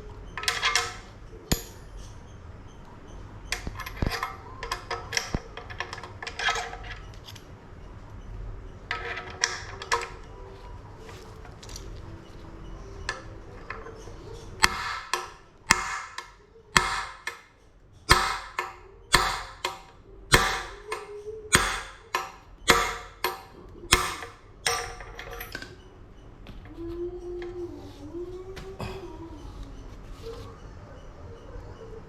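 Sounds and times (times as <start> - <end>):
hammer striking metal: 1.5 - 2.1, 14.6 - 17.5, 18.1 - 25.6.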